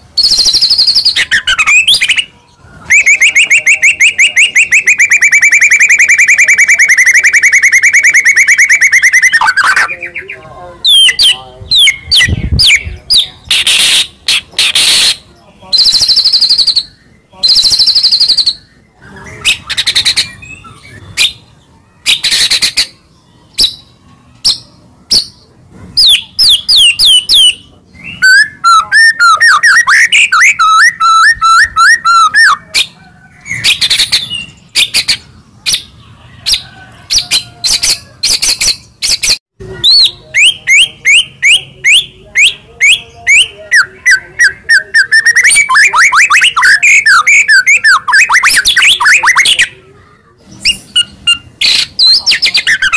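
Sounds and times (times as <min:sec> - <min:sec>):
bird singing whistled notes: 0:00.2 - 0:21.4, 0:26.0 - 0:32.6.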